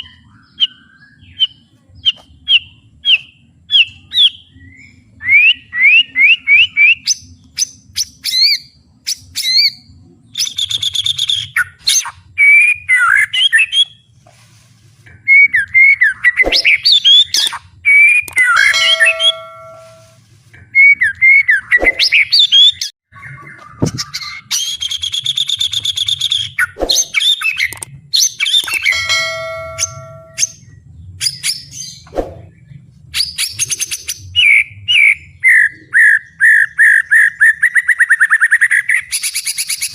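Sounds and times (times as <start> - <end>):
songbird singing varied song: 0.0 - 14.0.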